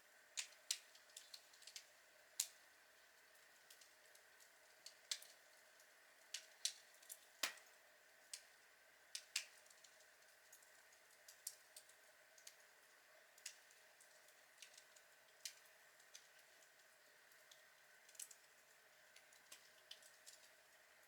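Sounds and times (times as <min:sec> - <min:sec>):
log fire crackling: 0:00.3 - 0:02.6, 0:03.2 - 0:20.7.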